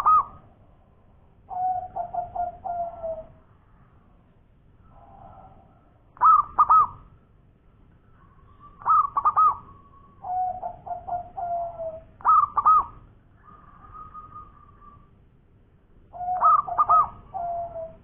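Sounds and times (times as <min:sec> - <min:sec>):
zebra dove cooing: 0:00.0 - 0:00.5, 0:01.5 - 0:03.4, 0:04.9 - 0:07.1, 0:08.2 - 0:15.2, 0:16.1 - 0:18.0.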